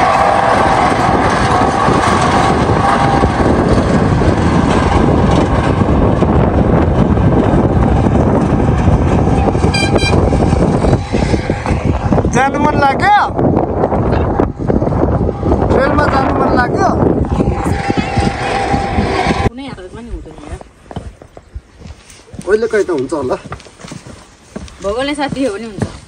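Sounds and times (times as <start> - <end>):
train locomotive running: 0.0 - 26.0.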